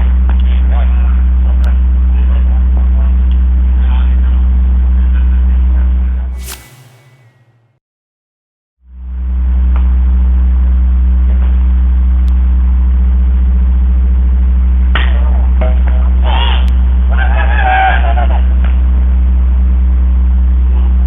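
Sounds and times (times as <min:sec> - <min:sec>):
loud low hum: 0:06.4 - 0:07.8.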